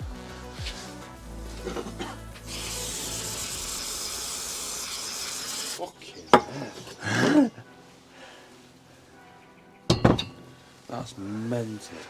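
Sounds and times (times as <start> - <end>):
spraying hiss: 0.0 - 7.0.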